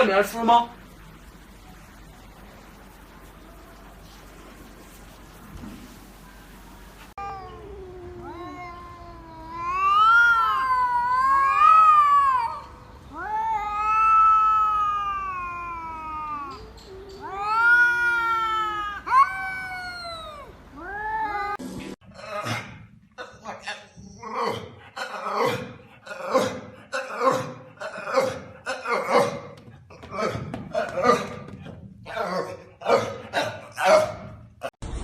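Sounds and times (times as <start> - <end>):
cat yowling: 7.2 - 21.6.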